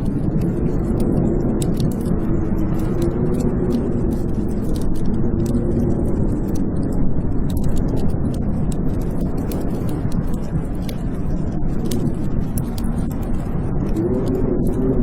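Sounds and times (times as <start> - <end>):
storm wind howling: 0.0 - 15.0
wood fire crackling: 0.0 - 15.0.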